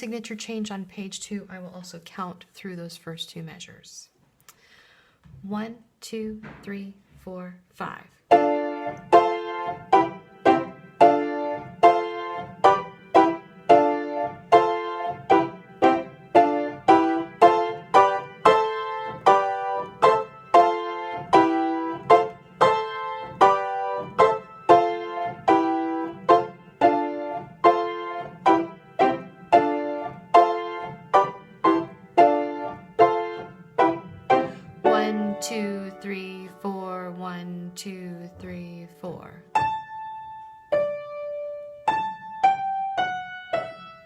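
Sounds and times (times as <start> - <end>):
piano struck chords: 8.3 - 37.3.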